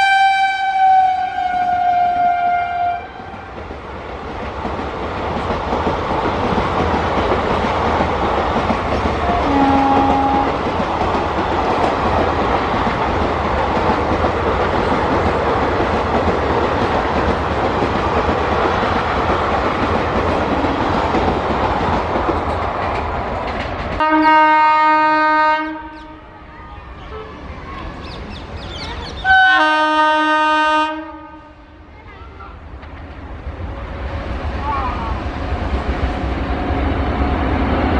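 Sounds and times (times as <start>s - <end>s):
train horn blast: 0.0s - 3.5s, 9.2s - 10.6s, 24.0s - 26.4s, 29.2s - 31.8s
loud locomotive horn: 0.0s - 3.6s, 9.2s - 10.6s, 24.0s - 26.4s, 29.2s - 31.9s
train wheels rumbling on rails: 0.8s - 37.9s.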